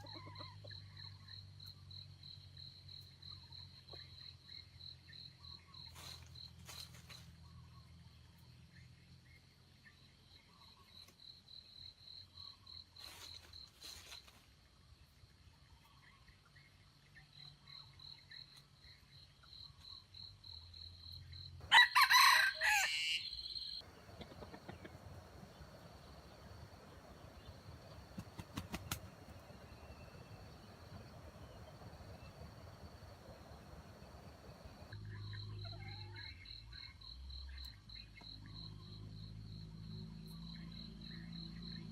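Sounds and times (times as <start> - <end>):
rooster crowing: 21.6 - 23.8
insects trilling: 21.7 - 41.9.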